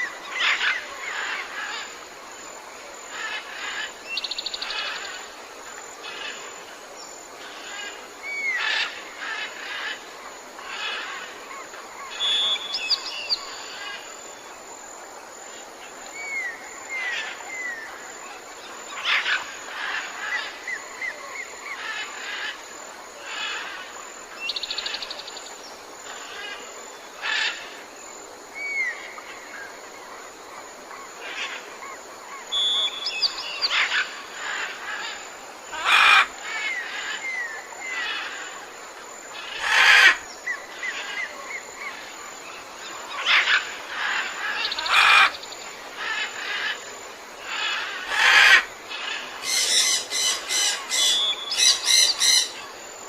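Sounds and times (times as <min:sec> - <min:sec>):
background noise: 0:00.0 - 0:53.0
birds chirping and whistling: 0:12.2 - 0:13.6, 0:32.5 - 0:33.9, 0:49.5 - 0:52.6
bird trills: 0:32.5 - 0:34.1, 0:49.4 - 0:52.6
harsh bird calls: 0:47.4 - 0:52.6.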